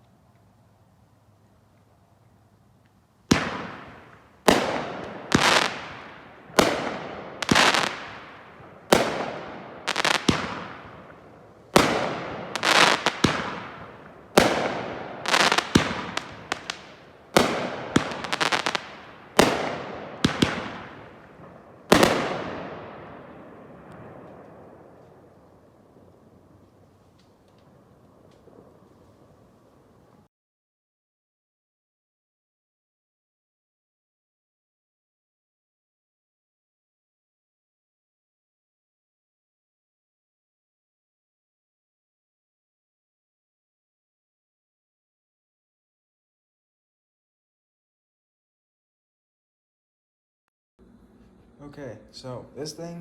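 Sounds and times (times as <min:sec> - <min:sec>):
firework bangs with echo: 0:03.3 - 0:11.2, 0:11.8 - 0:25.0.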